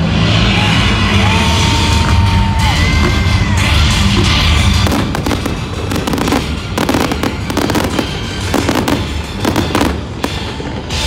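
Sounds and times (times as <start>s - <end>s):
low rumble: 0.0s - 10.9s
fireworks cracks and pops: 4.8s - 10.6s.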